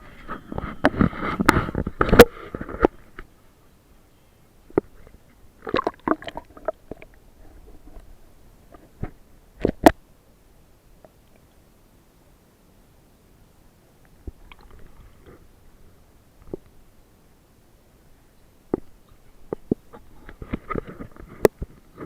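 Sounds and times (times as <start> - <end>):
paddle splashing water: 4.7 - 8.0.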